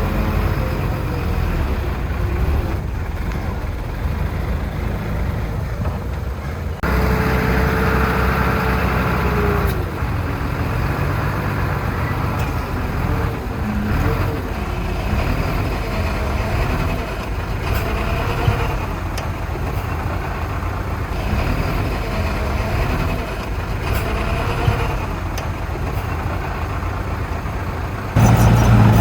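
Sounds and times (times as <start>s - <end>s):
diesel machinery engine drone: 0.0s - 29.0s
machinery whine: 28.2s - 29.0s.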